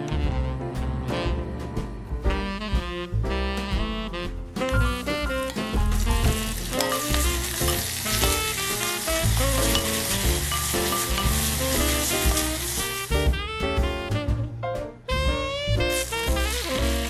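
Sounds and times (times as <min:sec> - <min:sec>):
food sizzling in a pan: 0:04.8 - 0:13.3, 0:15.7 - 0:17.0.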